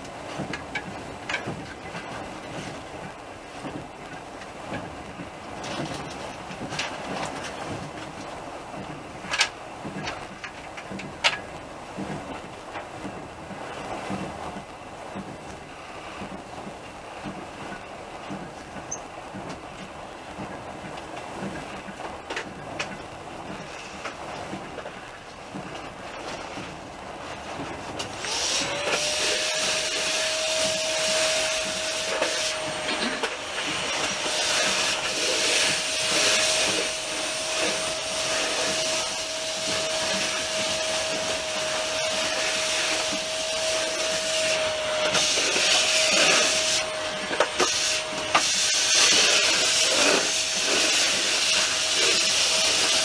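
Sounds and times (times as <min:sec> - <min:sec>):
knocks and clatter: 0:00.0 - 0:15.6
train hiss and rumble: 0:00.0 - 0:53.0
train whine: 0:00.0 - 0:53.0.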